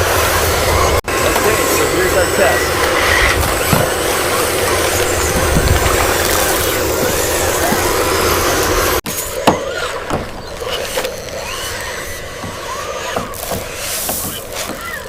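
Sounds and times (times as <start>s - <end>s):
motor and gear noise: 0.0s - 15.0s.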